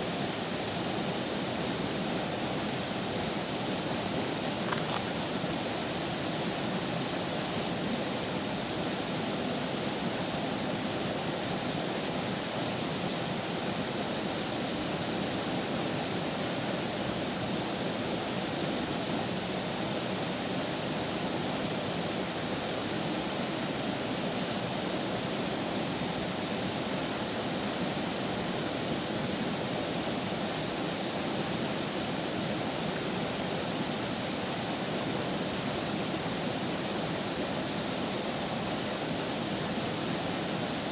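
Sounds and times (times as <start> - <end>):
river water rushing: 4.3 - 5.6.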